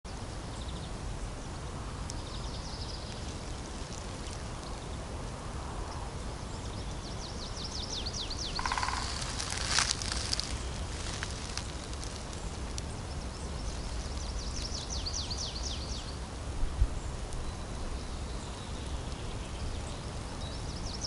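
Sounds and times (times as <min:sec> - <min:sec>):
songbirds singing: 0:00.1 - 0:21.0
sharp crackle: 0:02.9 - 0:04.9, 0:08.6 - 0:15.4.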